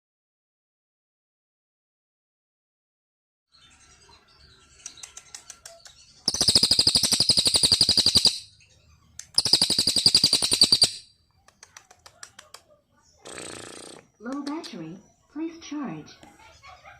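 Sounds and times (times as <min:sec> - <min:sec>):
songbird chirps and trills: 0:03.5 - 0:16.9.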